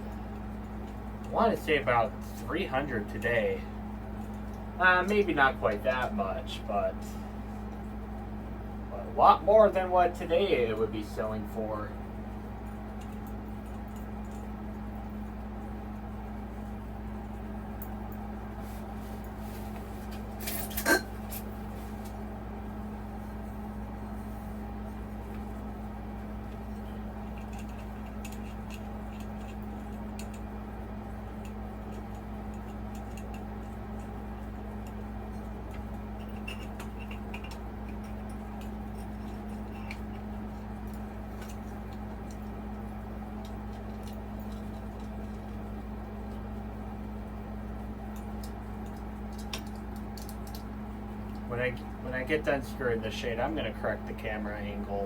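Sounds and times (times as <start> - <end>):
steady low hum: 0.0 - 55.0
faint clicks and scrapes: 27.2 - 30.5.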